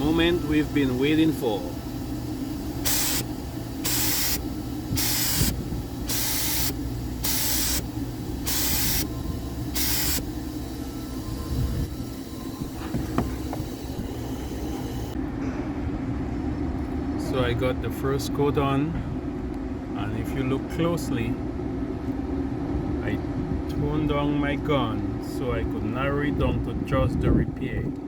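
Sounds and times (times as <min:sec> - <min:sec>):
paint spray gun hissing: 0:00.0 - 0:15.2
steady low hum: 0:00.0 - 0:28.0.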